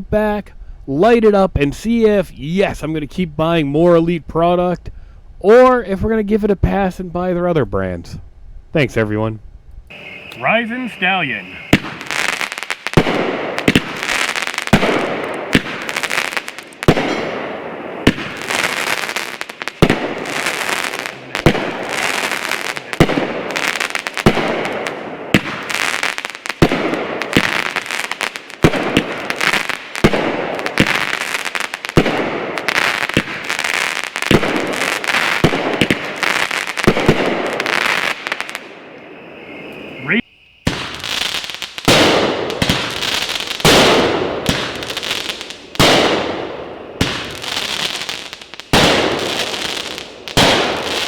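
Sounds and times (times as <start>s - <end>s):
firework reports: 8.8s - 51.0s
firework crackling: 9.9s - 39.9s, 40.6s - 51.0s.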